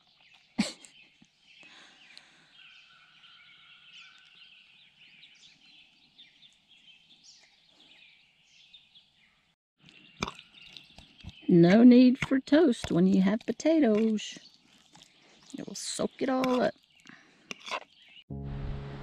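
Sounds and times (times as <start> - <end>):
faint bird chirps and calls: 0.0 - 11.9.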